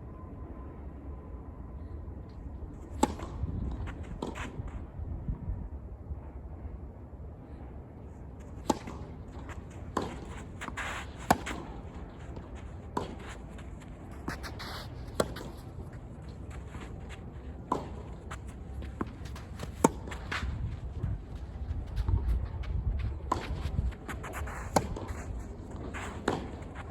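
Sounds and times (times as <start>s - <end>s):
tennis ball hits and bounces: 8.5s - 20.5s, 23.2s - 26.9s.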